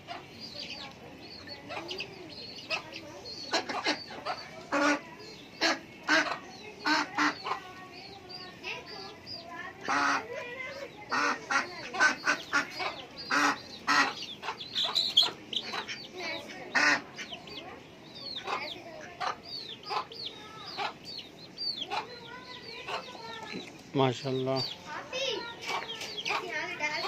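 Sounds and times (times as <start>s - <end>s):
chicken clucks: 0.0s - 27.0s
ducks or geese honking: 1.7s - 7.8s, 9.8s - 17.6s.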